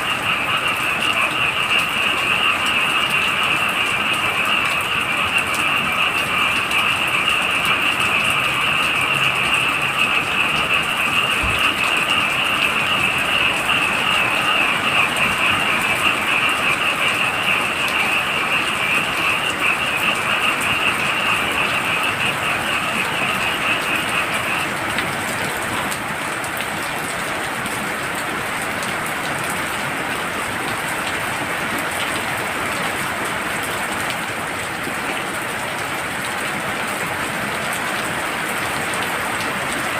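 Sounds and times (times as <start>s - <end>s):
frogs calling: 0.0s - 26.7s
heavy rain falling: 0.0s - 39.9s.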